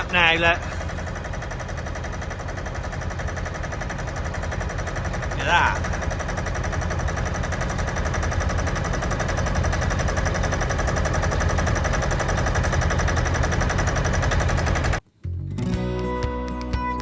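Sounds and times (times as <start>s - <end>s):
engine running: 0.0s - 15.1s.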